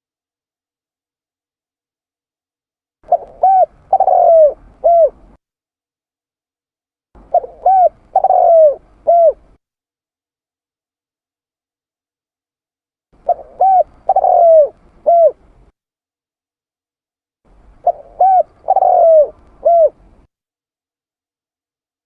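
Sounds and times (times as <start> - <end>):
dove cooing: 3.1 - 5.4, 7.2 - 9.6, 13.2 - 15.6, 17.8 - 20.3.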